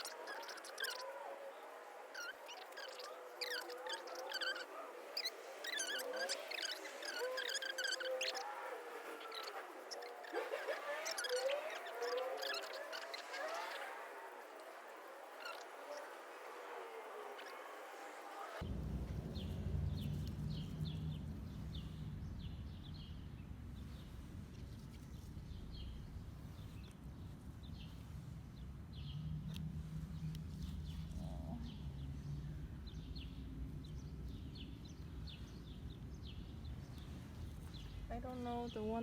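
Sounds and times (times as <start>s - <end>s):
small birds chirping: 0.0s - 18.7s, 19.3s - 39.0s
steady low rumble: 18.6s - 27.8s.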